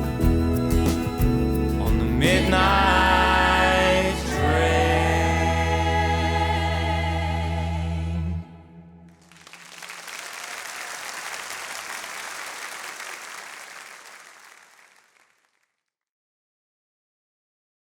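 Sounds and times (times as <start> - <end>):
audience applause: 9.2 - 15.5.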